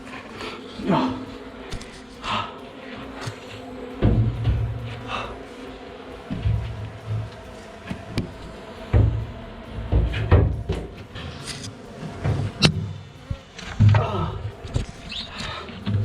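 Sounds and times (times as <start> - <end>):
deep thuds: 3.9 - 5.5, 6.1 - 15.0.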